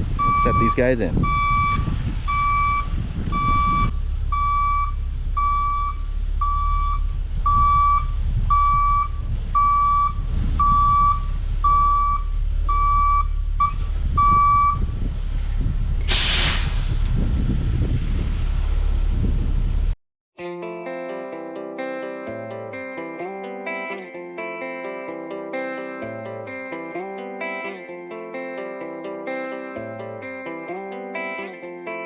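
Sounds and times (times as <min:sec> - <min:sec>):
truck backup alarm beeping: 0:00.0 - 0:16.8
truck engine running: 0:00.0 - 0:20.0.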